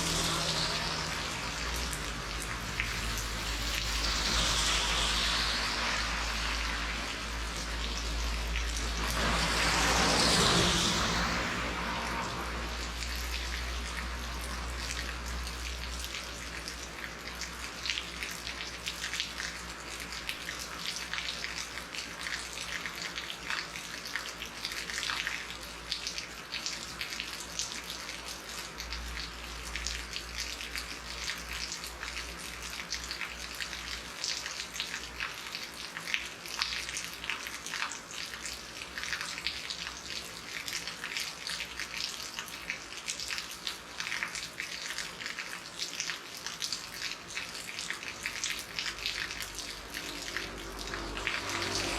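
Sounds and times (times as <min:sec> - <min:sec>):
low rumble: 0:00.0 - 0:12.9
heavy rain patter: 0:00.0 - 0:51.9.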